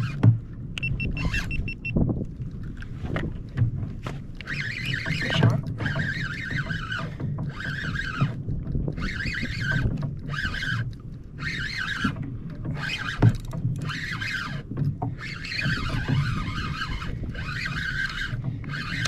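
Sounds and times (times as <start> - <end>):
fishing reel cranking: 4.4 - 19.0.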